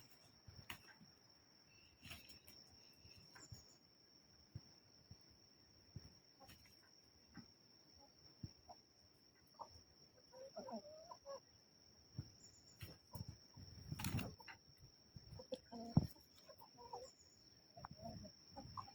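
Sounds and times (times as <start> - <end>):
roosters clucking and squawking: 6.1 - 18.9.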